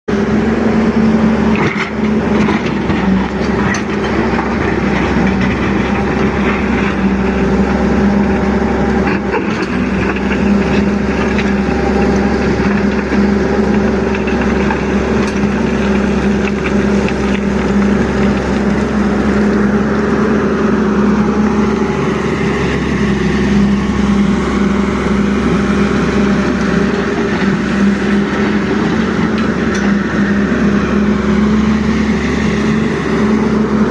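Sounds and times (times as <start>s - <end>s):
excavator diesel engine running: 0.1s - 33.9s.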